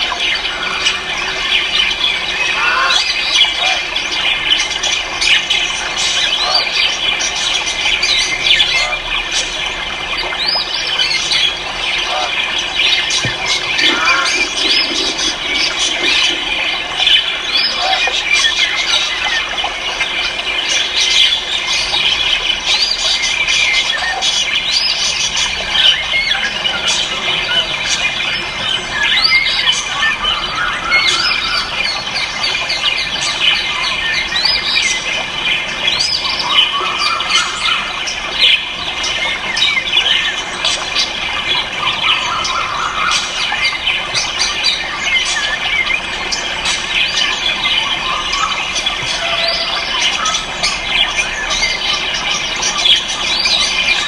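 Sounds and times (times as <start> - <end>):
chorus of birds chirping: 0.0 - 54.0.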